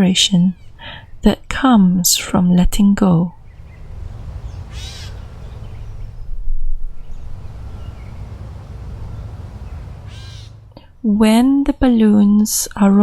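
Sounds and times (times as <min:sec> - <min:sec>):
wind rumble: 0:03.3 - 0:11.5
faint bird chirps: 0:03.4 - 0:10.7
crow cawing: 0:03.6 - 0:06.2, 0:07.4 - 0:10.6.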